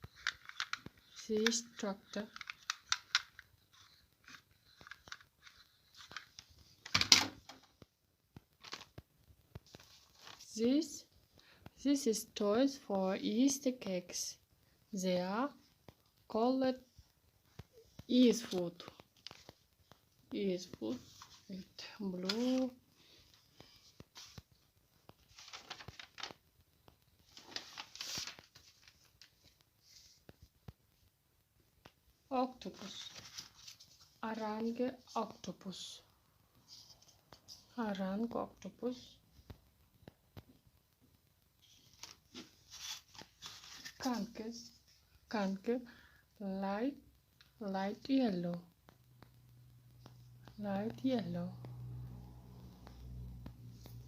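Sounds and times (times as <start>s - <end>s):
toys clicking and rustling: 0.0s - 7.7s
rustling: 8.4s - 10.6s, 15.5s - 31.2s, 32.6s - 35.5s, 41.6s - 45.2s.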